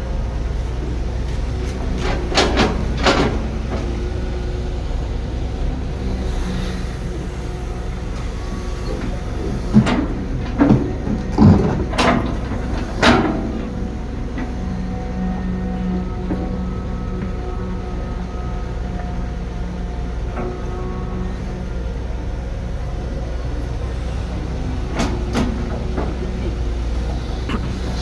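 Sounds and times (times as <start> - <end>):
excavator diesel engine running: 0.0 - 28.0
metallic clanks and knocks: 1.9 - 3.9, 9.7 - 14.5, 24.8 - 27.9.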